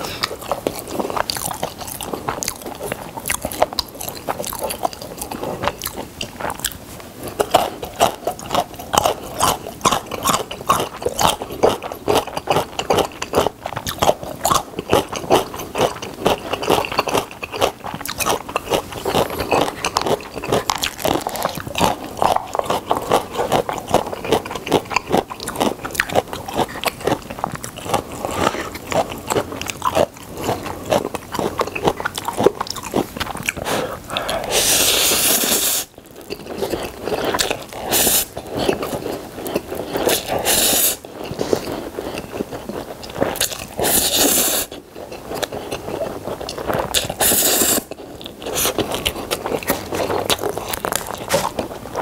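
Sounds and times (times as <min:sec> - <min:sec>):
wet chewing and crunching: 0:00.0 - 0:52.0
loud slurp of noodles: 0:33.6 - 0:35.9, 0:37.8 - 0:38.4, 0:40.0 - 0:41.0, 0:43.8 - 0:44.8, 0:47.1 - 0:47.9.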